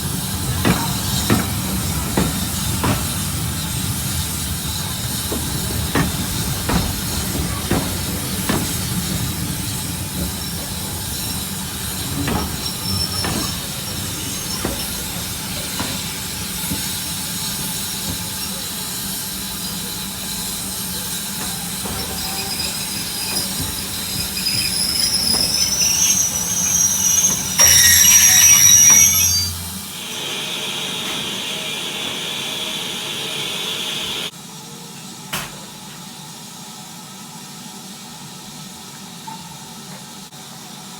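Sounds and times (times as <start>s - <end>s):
wheels clicking over rail joints: 0.0s - 29.8s
loud hiss: 0.0s - 34.3s
train rumbling on rails: 0.0s - 34.3s
wheel squeal: 0.0s - 34.3s.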